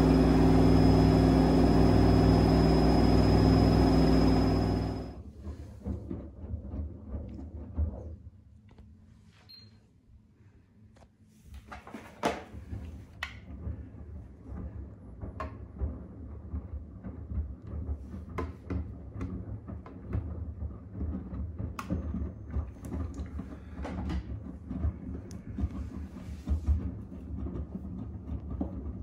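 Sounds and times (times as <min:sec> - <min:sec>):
washing machine motor rumble: 0:00.0 - 0:05.2.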